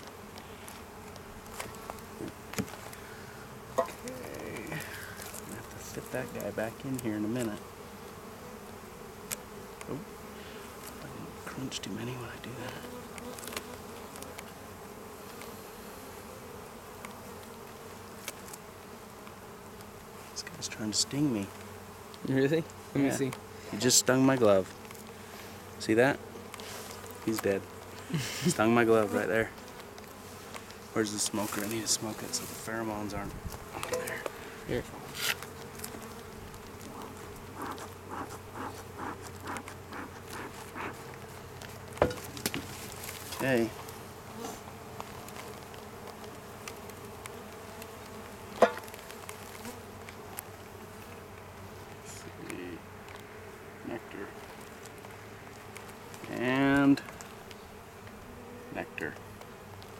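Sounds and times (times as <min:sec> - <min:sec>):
bee smoker bellows puffing: 0:00.0 - 0:52.3
honeybees buzzing: 0:00.0 - 0:59.9
sharp knock: 0:48.6 - 0:48.9.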